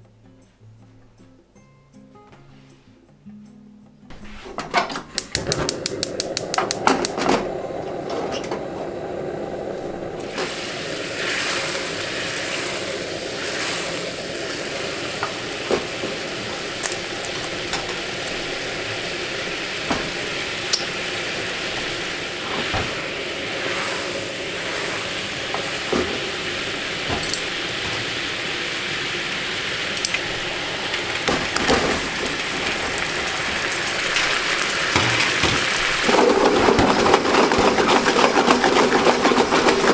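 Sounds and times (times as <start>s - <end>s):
utensil clicking against pan: 5.1s - 7.3s
meatballs sizzling in a pan: 10.3s - 36.1s.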